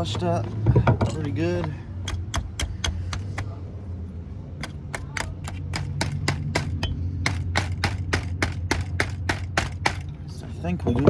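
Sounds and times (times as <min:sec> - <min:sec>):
steady low hum: 0:00.0 - 0:11.0
hand tool clicking: 0:01.1 - 0:03.6, 0:04.6 - 0:10.1.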